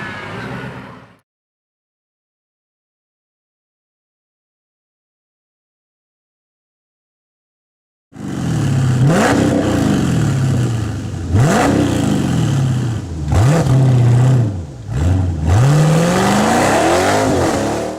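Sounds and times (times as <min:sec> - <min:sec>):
v eight engine revving: 0:08.2 - 0:17.9.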